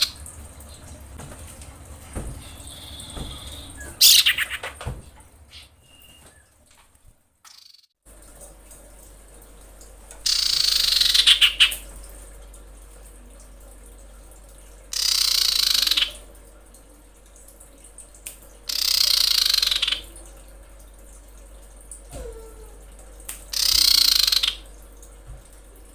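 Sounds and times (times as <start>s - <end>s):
bird rasping calls: 2.5s - 4.6s, 23.5s - 24.6s.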